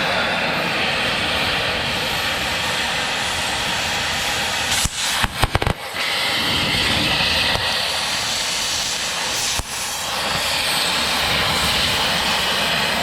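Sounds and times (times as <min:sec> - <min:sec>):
sharp cracks: 0:04.7 - 0:06.3.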